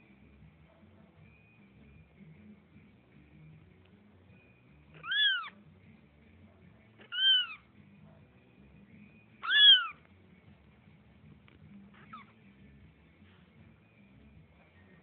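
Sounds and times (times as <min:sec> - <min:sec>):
cat meowing: 0:05.0 - 0:05.6, 0:07.0 - 0:07.6, 0:09.4 - 0:10.0.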